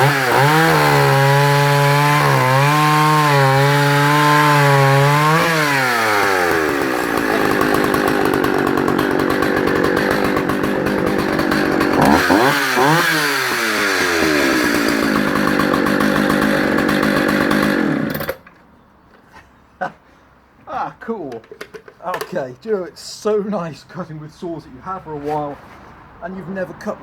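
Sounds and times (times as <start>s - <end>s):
chainsaw cutting timber: 0.0s - 18.4s.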